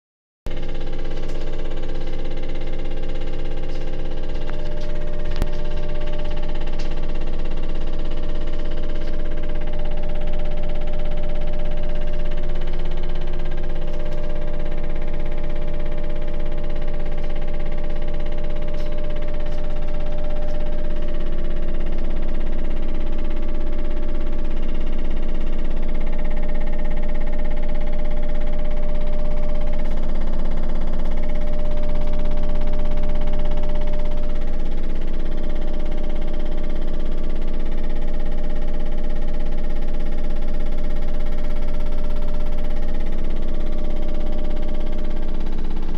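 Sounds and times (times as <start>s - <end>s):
washing machine droning: 0.5s - 45.9s
low rumble: 0.6s - 22.2s.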